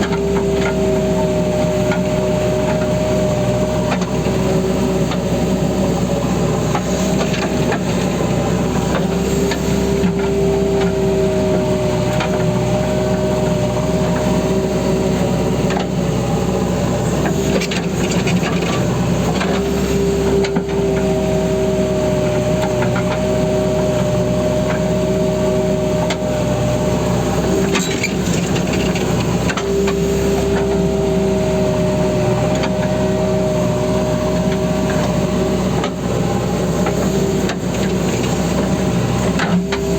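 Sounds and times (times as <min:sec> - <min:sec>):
diesel engine running: 0:00.0 - 0:39.9
engine whine: 0:00.0 - 0:39.9.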